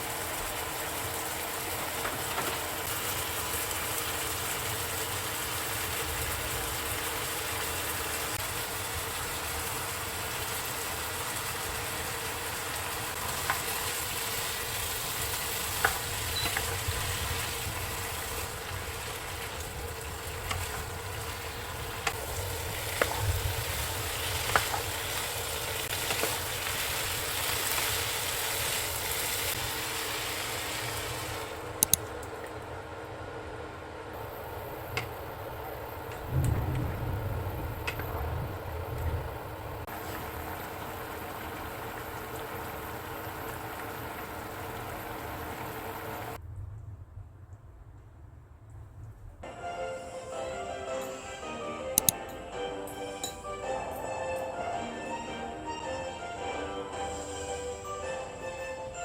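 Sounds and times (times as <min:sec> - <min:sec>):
food sizzling in a pan: 0:00.0 - 0:31.7, 0:37.4 - 0:46.4
sharp clicks and taps: 0:31.8 - 0:32.0.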